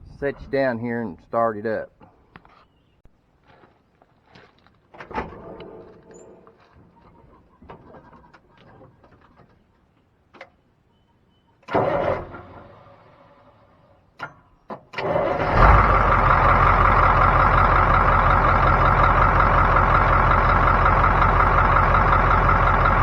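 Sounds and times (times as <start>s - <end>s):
diesel truck engine starting: 11.7s - 13.7s, 14.9s - 23.0s.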